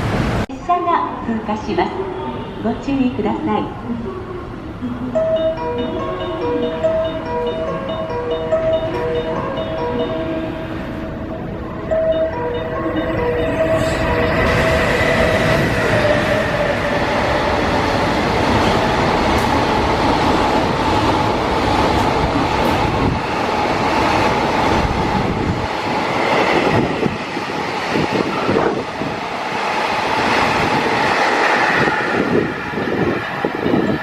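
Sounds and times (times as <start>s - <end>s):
freight train passing at speed: 0.0s - 34.0s.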